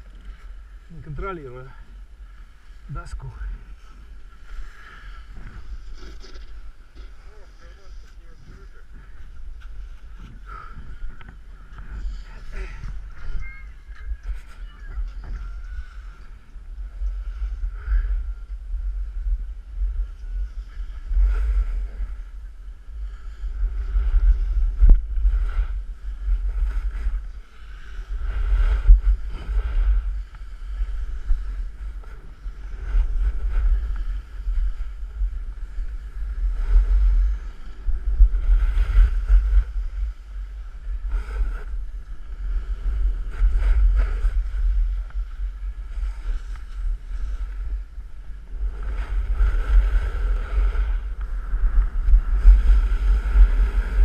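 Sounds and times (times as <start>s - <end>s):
wind buffeting microphone: 0.0s - 54.0s
snowboard edges scraping snow: 3.6s - 8.9s, 42.4s - 47.8s, 48.6s - 54.0s.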